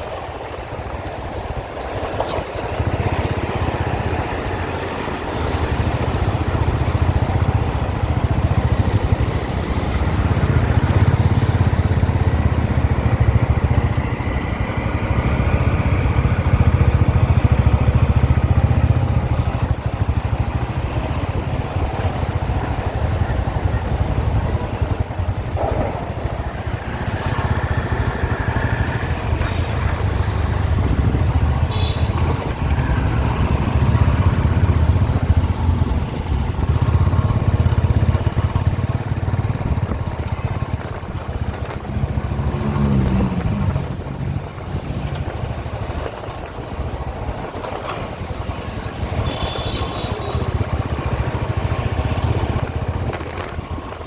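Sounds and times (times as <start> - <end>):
passing traffic: 0.0 - 54.0
motorcycle engine: 0.2 - 54.0
wind noise on microphone: 19.0 - 54.0.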